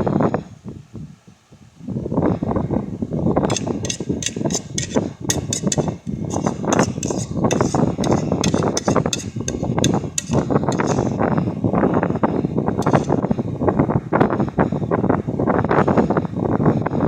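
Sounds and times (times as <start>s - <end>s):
sharp clicks of small hard objects: 3.5s - 11.2s.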